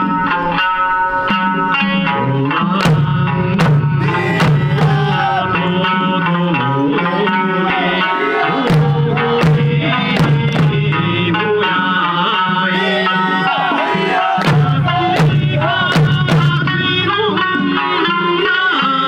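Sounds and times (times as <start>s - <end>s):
drum strikes: 2.8s - 5.7s, 8.7s - 11.3s, 14.4s - 17.1s
person singing: 4.0s - 19.0s.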